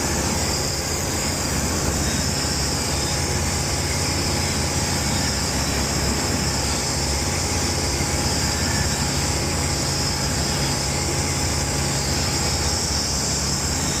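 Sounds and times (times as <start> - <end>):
aircraft engine and propeller drone: 0.0 - 14.0
rushing wind hiss: 0.0 - 14.0.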